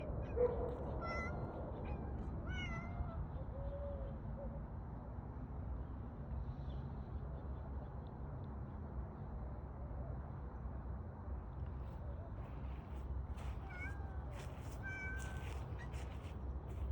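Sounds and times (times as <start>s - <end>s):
cat meowing: 1.0s - 1.4s, 2.5s - 3.2s, 13.6s - 16.0s.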